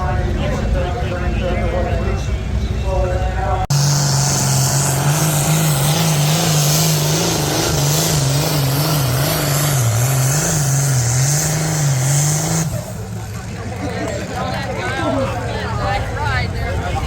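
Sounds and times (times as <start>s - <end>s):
vehicle engine revving under load: 3.7s - 13.2s.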